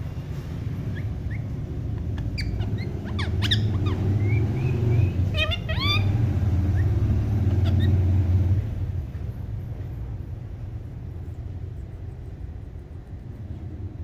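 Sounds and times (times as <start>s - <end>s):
steady low hum: 0.0s - 14.0s
bird chirps and tweets: 0.8s - 8.2s.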